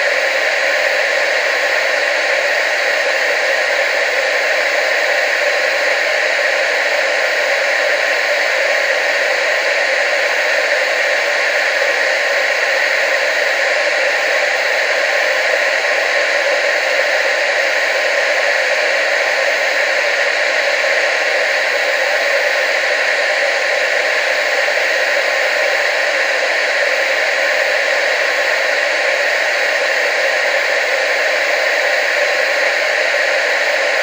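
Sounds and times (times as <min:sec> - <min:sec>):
tv static hiss: 0:00.0 - 0:34.0.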